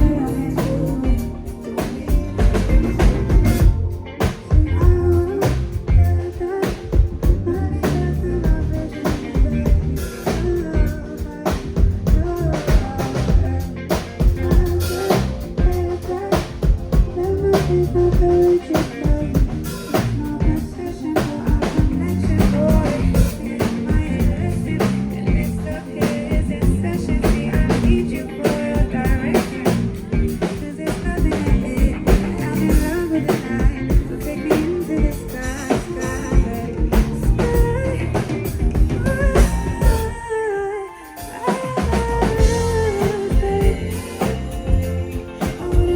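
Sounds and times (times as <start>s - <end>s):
drum kit steady beat: 0.0s - 40.2s, 41.1s - 45.9s
live band playing: 0.0s - 45.9s.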